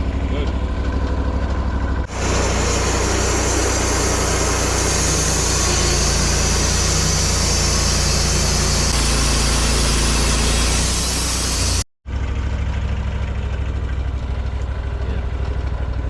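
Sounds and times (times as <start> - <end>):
engine idling: 0.0 - 16.0
sawmill engine running: 0.0 - 16.0.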